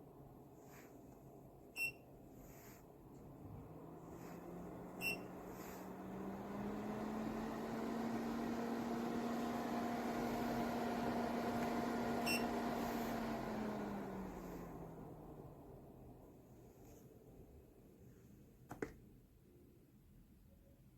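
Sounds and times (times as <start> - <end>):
air purifier fan humming: 0.0 - 17.8
short electronic beep: 5.0 - 5.3.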